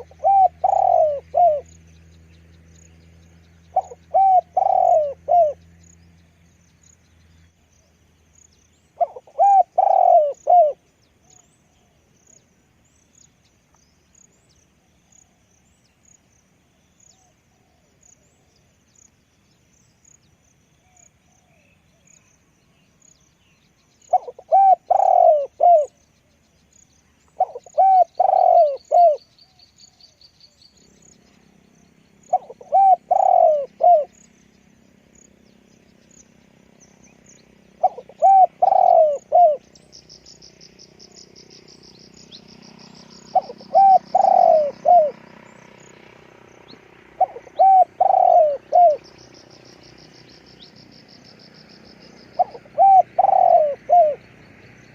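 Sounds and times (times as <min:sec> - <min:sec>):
dove cooing: 0:00.0 - 0:01.7, 0:03.7 - 0:05.6, 0:09.0 - 0:12.0, 0:24.1 - 0:25.9, 0:27.4 - 0:29.3, 0:32.2 - 0:34.2, 0:37.7 - 0:39.8, 0:42.5 - 0:45.8, 0:47.1 - 0:49.9, 0:51.9 - 0:54.4.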